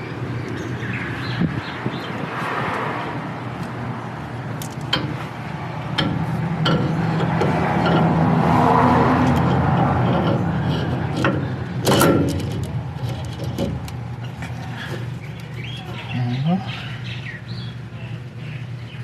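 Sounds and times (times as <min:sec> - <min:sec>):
low machine hum: 0:03.1 - 0:19.0
sharp metal knock: 0:05.9 - 0:10.5.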